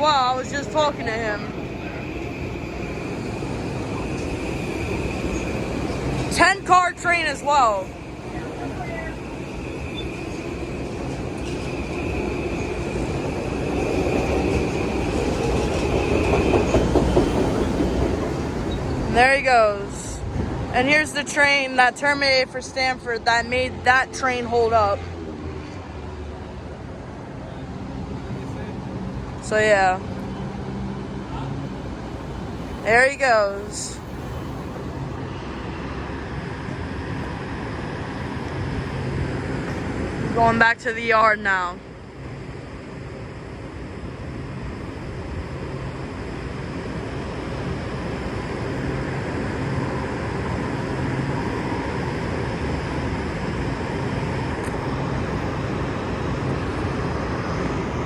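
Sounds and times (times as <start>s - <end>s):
electric train running past: 0.0s - 58.0s
wheels rumbling on rails: 0.0s - 58.0s
wheels clacking over rail joints: 13.8s - 19.1s.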